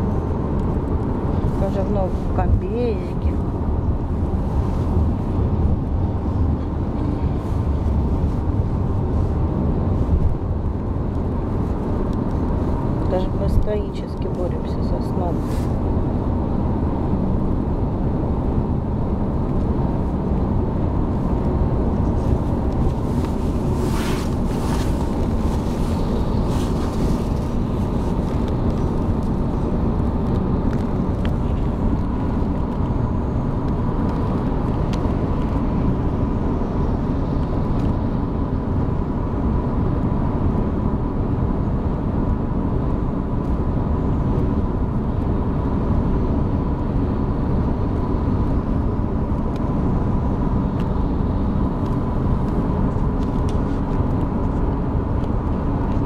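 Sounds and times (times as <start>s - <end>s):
car cabin road rumble: 0.0s - 56.0s.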